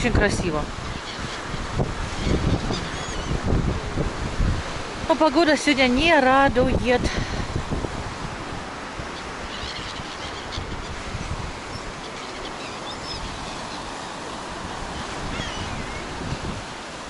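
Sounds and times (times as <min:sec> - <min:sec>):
sea surf: 0:00.0 - 0:17.0
wind buffeting microphone: 0:00.0 - 0:17.0
wind roaring: 0:00.0 - 0:17.0
faint high bird calls: 0:02.2 - 0:03.4, 0:09.1 - 0:11.0, 0:11.7 - 0:13.9, 0:15.0 - 0:16.1.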